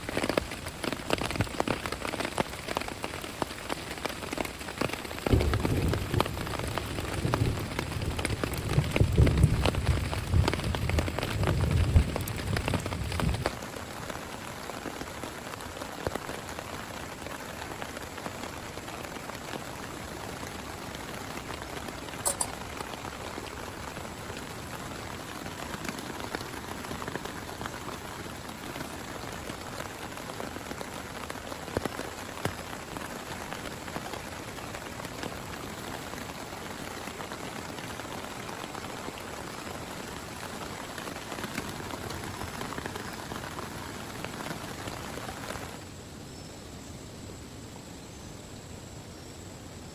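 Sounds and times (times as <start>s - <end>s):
rain drops ticking: 0.0s - 45.9s
rain falling: 0.0s - 46.2s.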